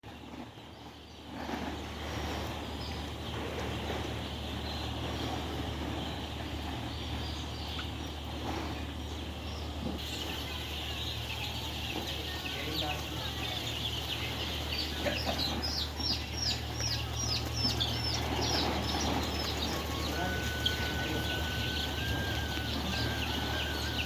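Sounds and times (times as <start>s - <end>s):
steady low hum: 0.0s - 24.0s
hens clucking: 0.1s - 24.0s
short high calls: 19.1s - 24.0s.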